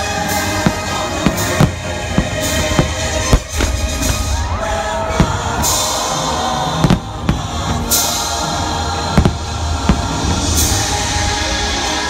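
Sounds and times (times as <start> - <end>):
music soundtrack: 0.0 - 12.0
firework shells bursting: 0.3 - 4.5.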